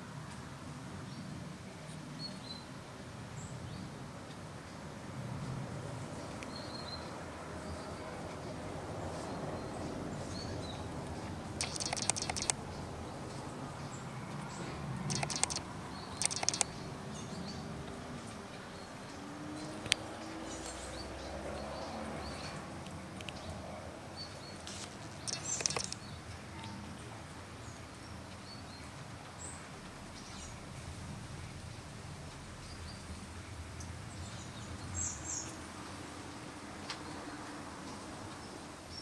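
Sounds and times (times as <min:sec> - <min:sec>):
bird chirps: 0:11.6 - 0:12.6, 0:15.1 - 0:16.8, 0:25.2 - 0:26.1.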